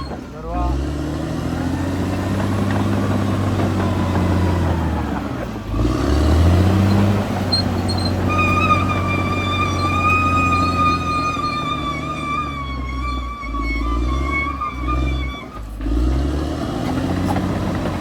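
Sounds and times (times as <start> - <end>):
bulldozer diesel engine running: 0.0 - 18.0
steady high tone: 8.3 - 15.3.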